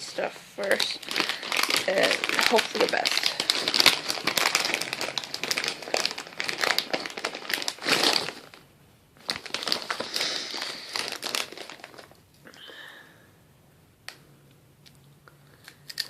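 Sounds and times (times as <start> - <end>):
snack packet crinkling: 0.6 - 12.2.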